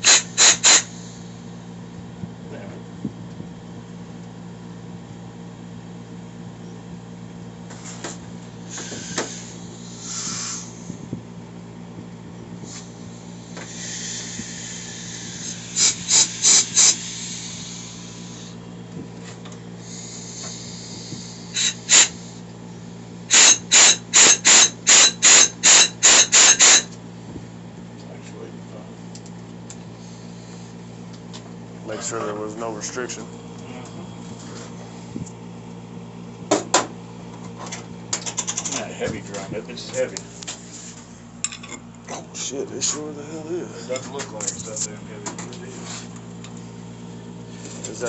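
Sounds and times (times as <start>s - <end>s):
compressed air blow gun blasts: 0.0s - 1.3s, 8.7s - 11.2s, 12.6s - 18.6s, 19.8s - 22.5s, 23.3s - 26.9s.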